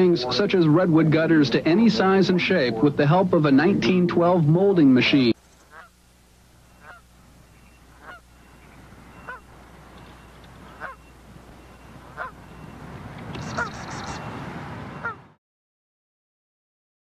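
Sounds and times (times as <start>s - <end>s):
steady low hum: 0.0s - 15.4s
bird honking calls: 5.5s - 15.4s.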